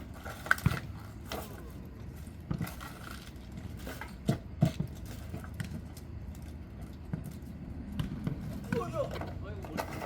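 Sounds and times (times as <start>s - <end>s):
ball kicked and bouncing: 0.2s - 1.4s, 2.4s - 3.0s, 4.1s - 9.4s.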